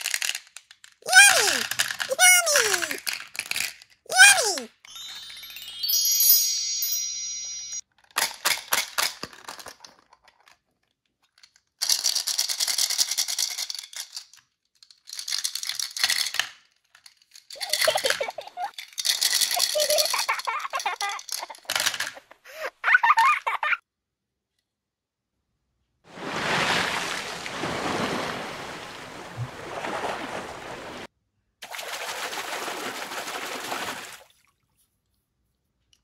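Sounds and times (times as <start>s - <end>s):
candies rattling in plastic container: 0.0s - 4.0s, 11.4s - 22.2s.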